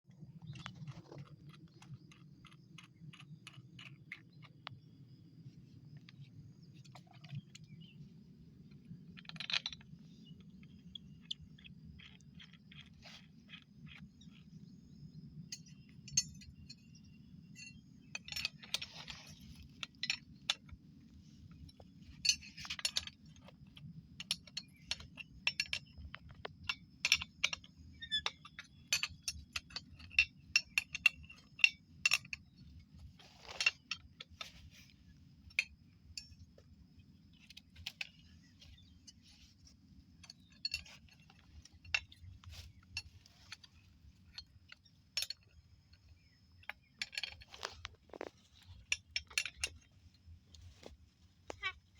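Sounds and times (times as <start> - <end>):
metal tools clinking and scraping: 15.5 - 20.8, 21.4 - 51.9.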